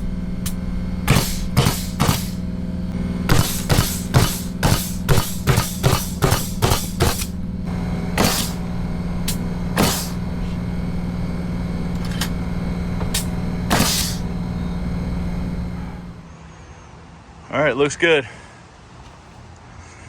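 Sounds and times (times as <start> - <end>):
steady machine hum: 0.0 - 18.6
hammer striking nails into wood: 1.1 - 2.4, 3.3 - 7.4, 8.2 - 8.6, 9.3 - 10.2.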